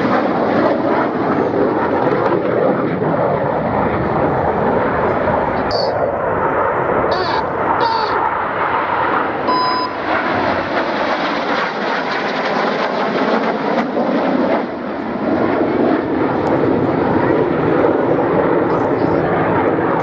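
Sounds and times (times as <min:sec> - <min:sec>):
jet engines roaring past: 0:00.0 - 0:20.0
brief high tone: 0:05.7 - 0:06.0, 0:07.1 - 0:08.2, 0:09.5 - 0:10.1.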